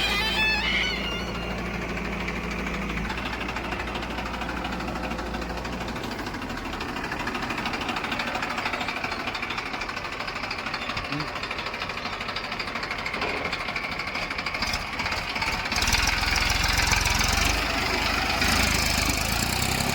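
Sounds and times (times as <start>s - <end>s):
high-pitched tone: 0.0s - 1.8s
diesel engine knocking: 0.0s - 19.9s.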